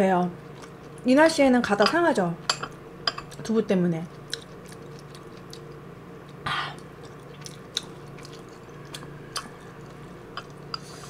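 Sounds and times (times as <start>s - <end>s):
faint steady hum: 0.0s - 11.0s
person chewing with wet smacks: 0.5s - 1.0s, 3.2s - 11.0s.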